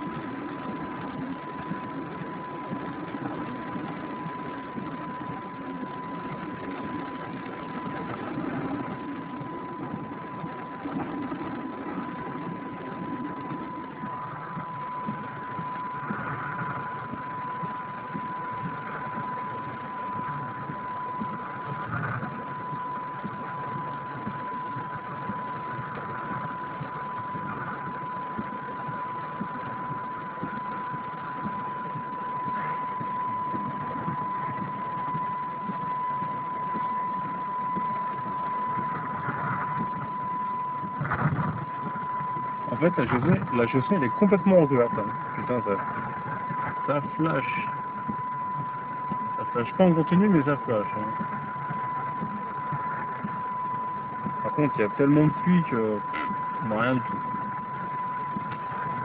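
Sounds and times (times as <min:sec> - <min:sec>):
thin high tone: 0:27.0 - 0:59.0.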